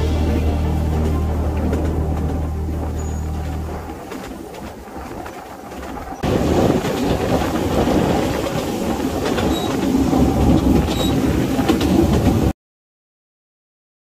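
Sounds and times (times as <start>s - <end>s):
train wheels rumbling on rail: 0.0s - 12.5s
high squeaks: 1.0s - 4.2s.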